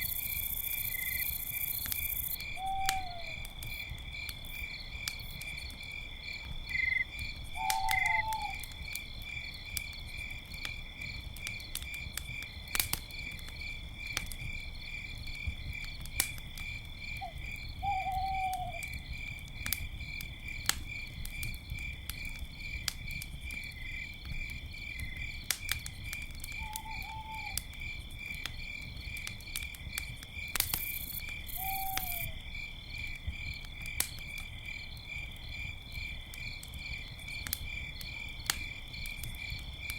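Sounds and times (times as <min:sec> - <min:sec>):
campfire crackling: 0:00.0 - 0:39.9
crickets chirping: 0:00.0 - 0:39.9
owl calls: 0:02.6 - 0:03.4, 0:07.6 - 0:08.6, 0:17.2 - 0:18.8, 0:31.6 - 0:32.3.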